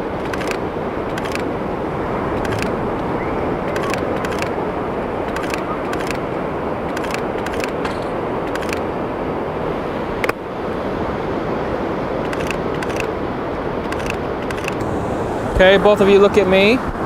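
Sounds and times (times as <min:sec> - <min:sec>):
ocean surf rushing: 0:00.0 - 0:17.0
camera shutter clicks: 0:00.2 - 0:01.5, 0:02.4 - 0:02.8, 0:03.7 - 0:04.6, 0:05.3 - 0:06.3, 0:06.9 - 0:08.9, 0:12.2 - 0:13.1, 0:13.8 - 0:14.8.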